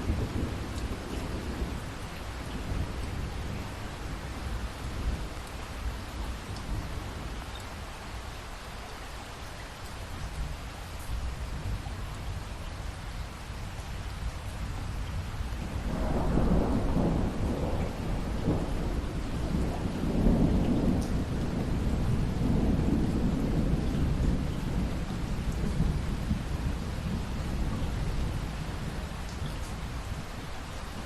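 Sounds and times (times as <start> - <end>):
rolling thunder rumble: 0.0 - 7.6, 14.6 - 31.0
steady rain: 0.0 - 31.0.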